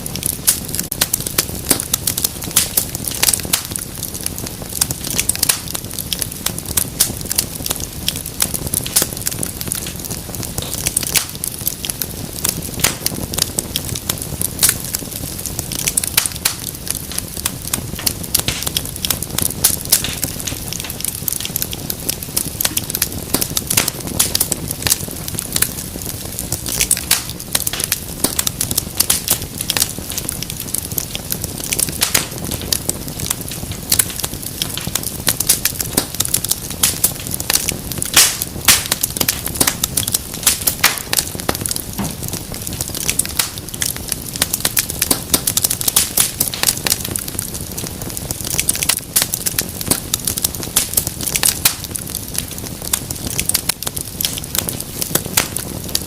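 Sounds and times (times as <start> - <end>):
rushing of flames: 0.0 - 56.0
wood fire crackling: 0.0 - 56.0.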